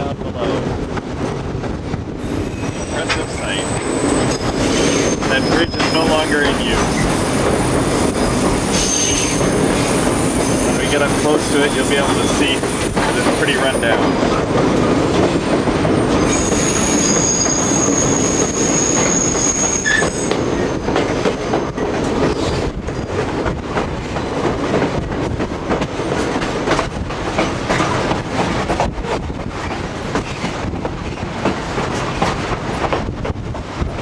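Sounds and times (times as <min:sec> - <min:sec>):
train rumble: 0:00.0 - 0:34.0
wheels clacking over rail joints: 0:00.6 - 0:34.0
high wheel squeal: 0:02.2 - 0:07.3, 0:07.9 - 0:14.0, 0:16.2 - 0:20.7.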